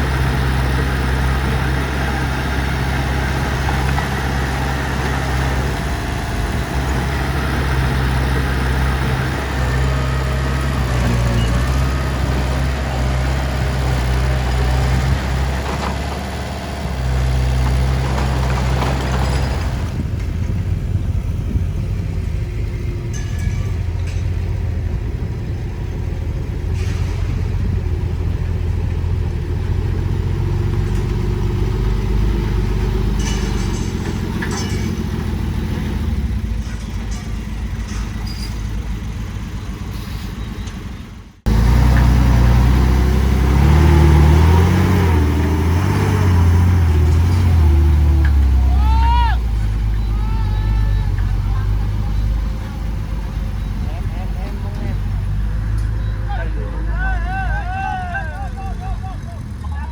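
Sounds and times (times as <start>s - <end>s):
diesel machinery engine running: 0.0s - 59.9s
engine pitch rising and falling: 41.4s - 59.9s.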